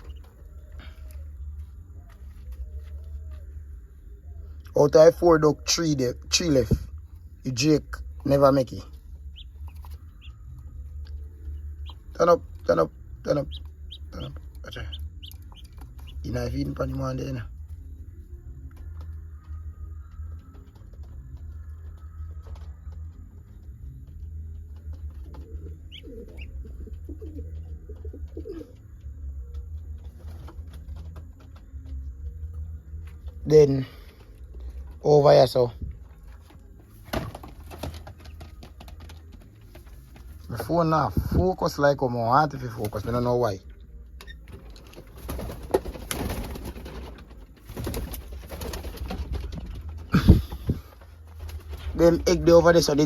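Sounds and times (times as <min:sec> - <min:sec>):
pigeons cooing: 0:00.0 - 0:04.6, 0:25.2 - 0:29.7
steady low rumble: 0:00.0 - 0:21.0.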